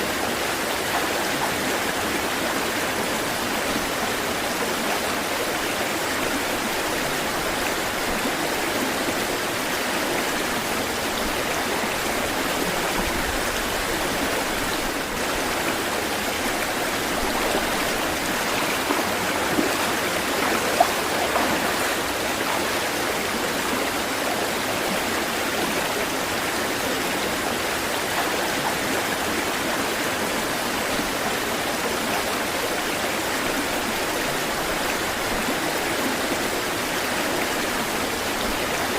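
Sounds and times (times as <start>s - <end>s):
stream rushing over rocks: 0.0s - 38.9s
water splashes: 5.3s - 30.2s.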